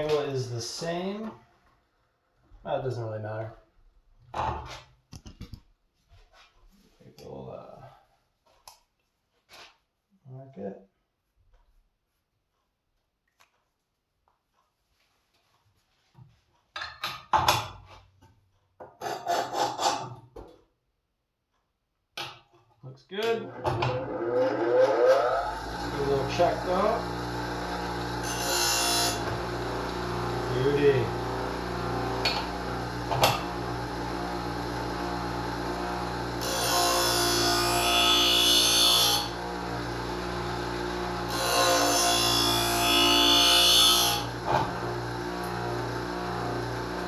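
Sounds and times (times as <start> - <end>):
scissor blade grinding on wheel: 23.9 - 31.4
electric motor hum: 23.9 - 37.7, 38.6 - 43.2, 44.1 - 47.0.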